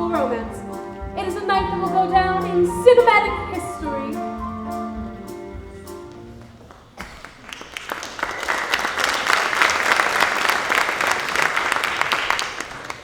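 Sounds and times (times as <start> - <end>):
sustained musical chords: 0.0 - 6.6
audience applause: 6.6 - 13.0.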